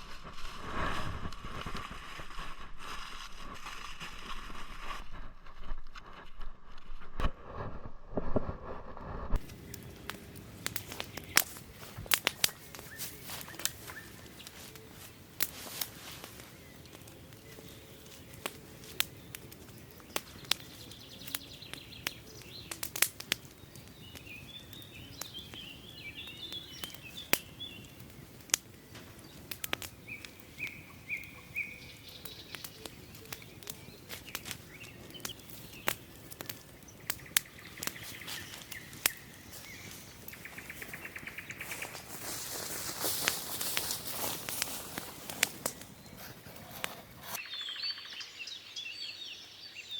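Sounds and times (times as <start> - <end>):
sharp clicks and snaps: 9.3 - 14.8, 21.3 - 24.2, 32.2 - 39.8
songbirds chirping and trilling: 9.4 - 49.9.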